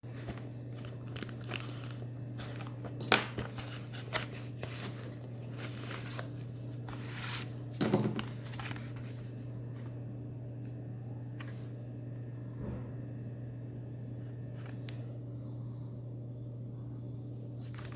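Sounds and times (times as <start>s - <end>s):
steady low hum: 0.0s - 17.9s
packaging crinkling and tearing: 0.1s - 9.3s.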